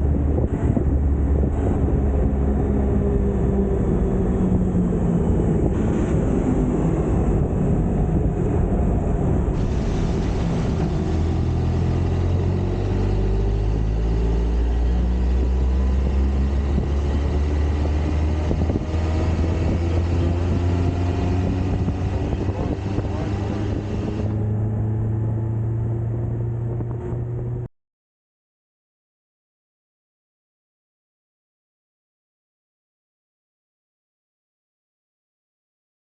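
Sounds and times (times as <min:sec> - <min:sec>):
motorcycle engine humming: 0:00.0 - 0:27.7
wind and road noise: 0:00.0 - 0:27.7.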